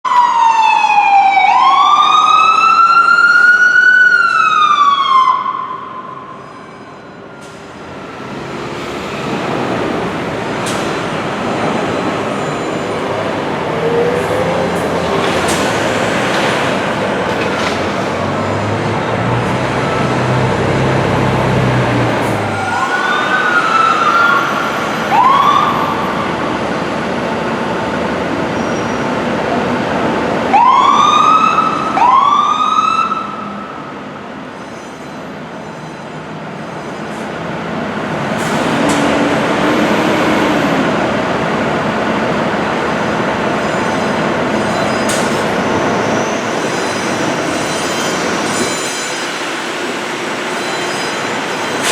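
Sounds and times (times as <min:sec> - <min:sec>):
fire engine siren whoops: 0:00.1 - 0:06.4, 0:22.2 - 0:27.2, 0:30.5 - 0:33.8
street traffic: 0:05.1 - 0:51.9.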